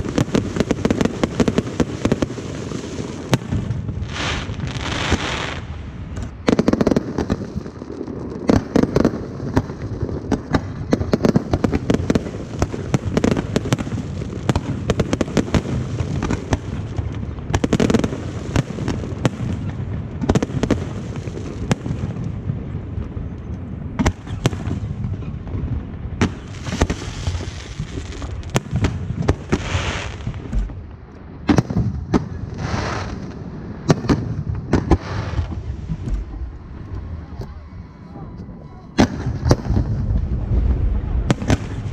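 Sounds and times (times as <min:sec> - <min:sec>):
rockets hissing: 0:00.0 - 0:07.9, 0:26.2 - 0:30.8, 0:32.2 - 0:37.6.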